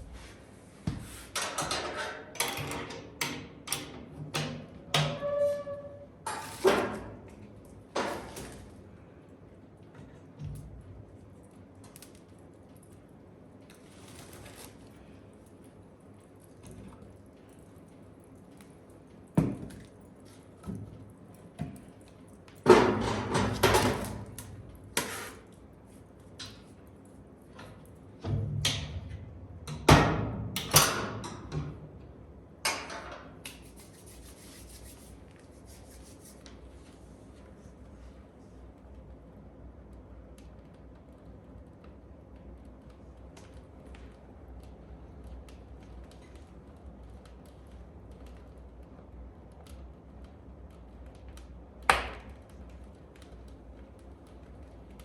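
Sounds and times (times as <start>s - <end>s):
wood fire crackling: 8.6s - 22.9s, 23.5s - 28.2s, 35.1s - 55.0s.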